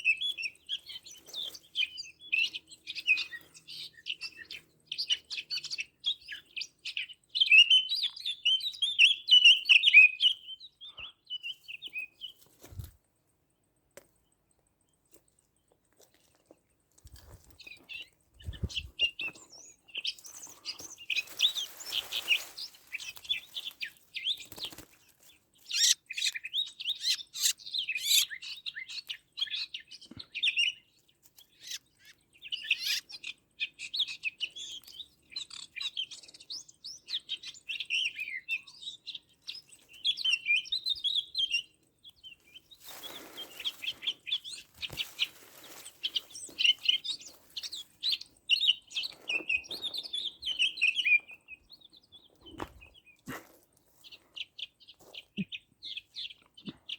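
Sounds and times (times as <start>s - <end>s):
songbirds chirping: 0.0s - 56.9s
rustle: 20.1s - 26.0s, 42.8s - 48.2s.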